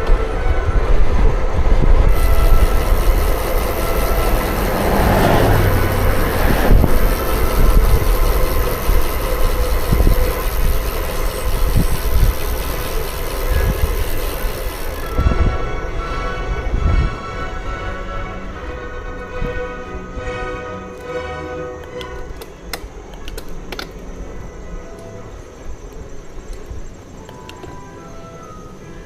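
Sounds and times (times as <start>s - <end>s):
wind and road noise: 0.0s - 29.0s
motor vehicle passing: 2.1s - 15.3s.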